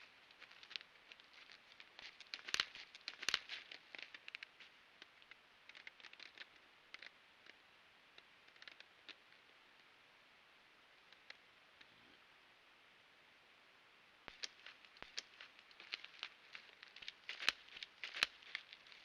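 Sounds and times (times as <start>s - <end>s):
crackling in dry forest litter: 0.0s - 7.6s, 8.2s - 9.5s, 14.2s - 19.0s
twigs snapping: 0.3s - 7.1s, 14.3s - 19.0s.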